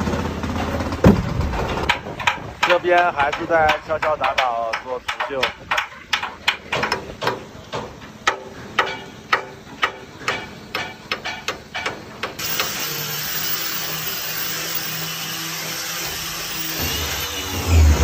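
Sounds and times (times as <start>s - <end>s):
hammers knocking on steel hull: 1.0s - 12.0s
angle grinder sanding hull: 12.4s - 18.0s.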